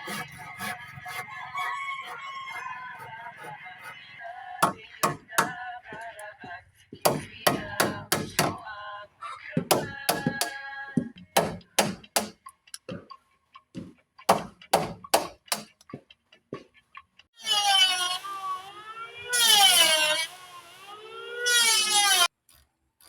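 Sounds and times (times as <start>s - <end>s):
background music: 2.5s - 8.7s
hammer blows on wood: 4.6s - 6.1s, 7.0s - 8.6s, 9.6s - 12.4s, 14.3s - 15.8s.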